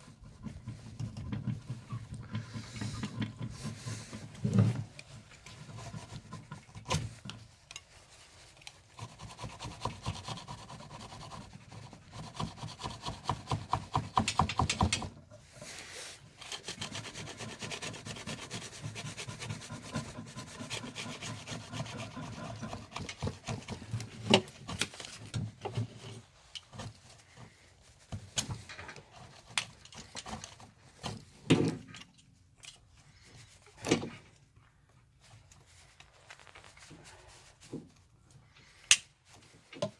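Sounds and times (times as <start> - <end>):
rapid rubbing by hand: 15.6 - 24.2.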